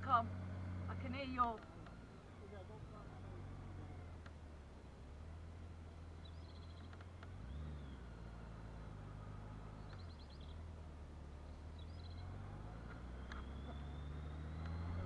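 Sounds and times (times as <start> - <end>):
bird chirping: 6.2 - 8.1, 9.7 - 10.7, 11.3 - 15.0.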